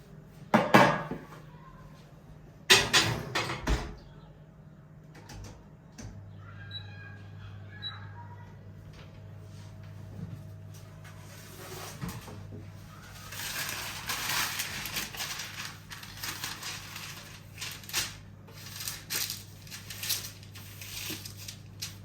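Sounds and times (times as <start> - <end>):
crunching rustling handling noises: 10.7 - 22.0.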